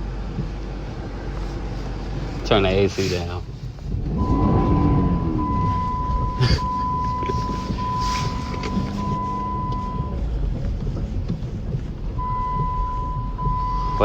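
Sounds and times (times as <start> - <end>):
engine and road rumble: 0.0 - 14.0
high electronic beep: 4.2 - 10.2
brief hisses: 7.4 - 9.0.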